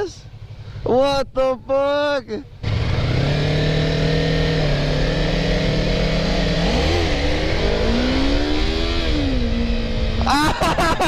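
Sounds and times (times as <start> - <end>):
motorcycle engine accelerating: 2.5 - 11.0.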